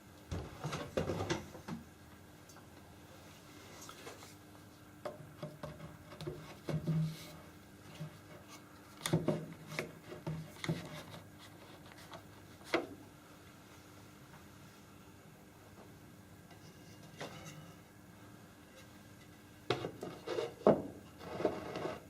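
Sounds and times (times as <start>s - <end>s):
objects knocking and scraping: 0.3s - 1.8s, 5.1s - 7.3s, 19.7s - 22.0s.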